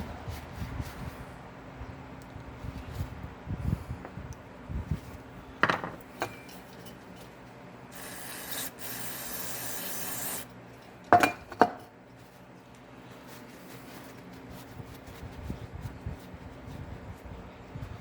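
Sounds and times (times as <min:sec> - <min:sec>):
spray hissing: 0:08.0 - 0:10.5.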